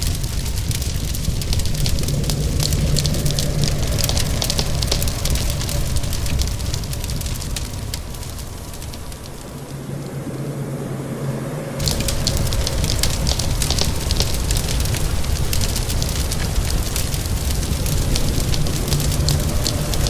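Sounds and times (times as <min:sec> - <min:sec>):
fireplace fire crackling: 0:00.0 - 0:10.6, 0:11.8 - 0:20.0
low hum: 0:00.0 - 0:20.0
low rumble: 0:00.0 - 0:20.0
steady hiss: 0:00.0 - 0:20.0.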